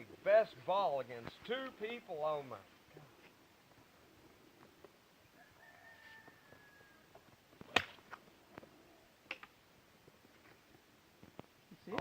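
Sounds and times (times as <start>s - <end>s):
rooster crowing: 5.3s - 7.4s.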